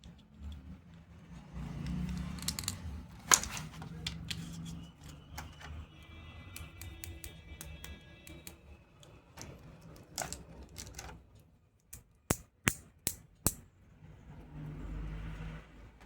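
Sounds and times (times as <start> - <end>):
plastic toy pieces clicking: 1.8 - 4.4, 6.6 - 11.2.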